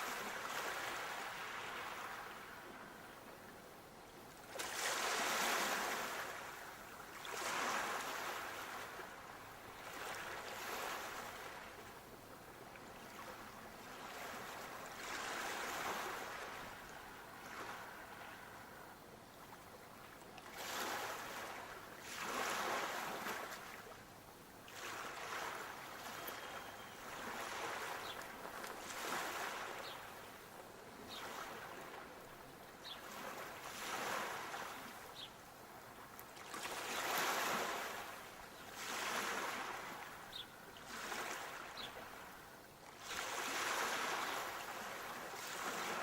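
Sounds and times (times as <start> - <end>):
sea waves breaking: 0.0 - 2.8, 4.5 - 11.9, 13.0 - 18.9, 20.4 - 24.0, 24.7 - 30.3, 33.0 - 35.2, 36.4 - 42.4, 43.0 - 46.0.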